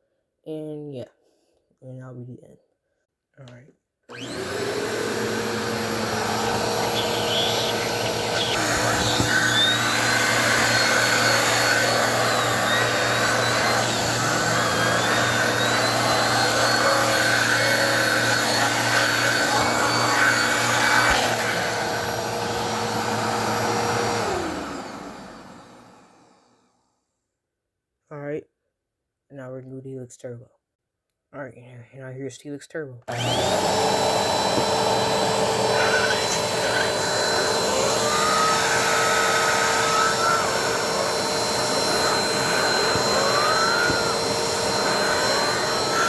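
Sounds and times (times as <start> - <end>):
vacuum motor winding down: 4.1 - 26.5, 33.1 - 46.0
vacuum cleaner motor whine: 4.1 - 26.6, 33.1 - 46.0.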